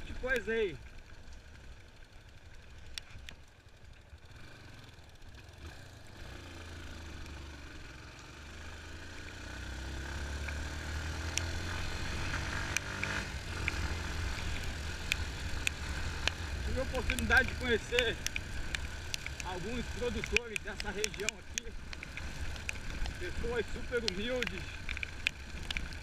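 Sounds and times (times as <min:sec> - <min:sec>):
motorcycle engine accelerating: 0:00.0 - 0:26.0
sharp clicks: 0:11.2 - 0:26.0.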